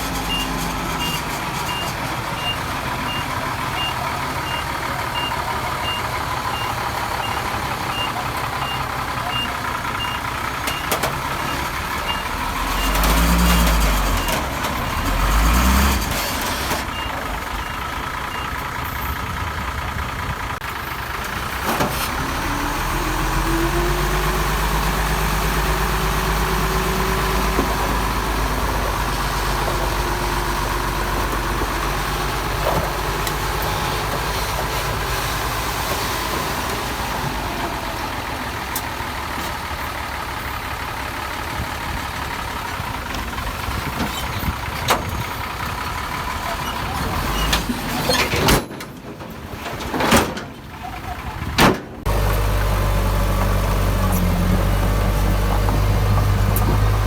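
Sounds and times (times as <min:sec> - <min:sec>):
heavy diesel machinery: 0:00.0 - 0:57.0
reversing alarm beeping: 0:00.3 - 0:10.9.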